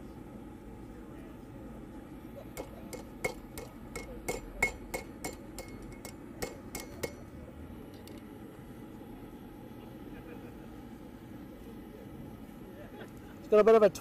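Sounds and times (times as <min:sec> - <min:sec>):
hammer striking steel on anvil: 0:02.6 - 0:07.3.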